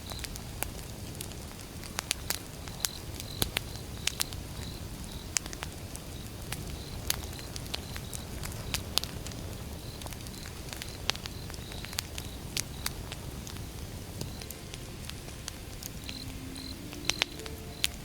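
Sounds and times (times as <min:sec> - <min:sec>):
firewood crackling and popping: 0:00.0 - 0:18.0
low rumble of flames: 0:00.0 - 0:18.0
faint high whistles: 0:14.2 - 0:18.0.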